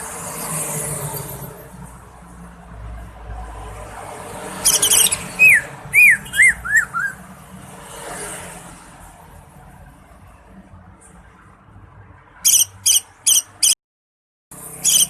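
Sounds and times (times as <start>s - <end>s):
bird singing whistled notes: 4.7s - 7.2s.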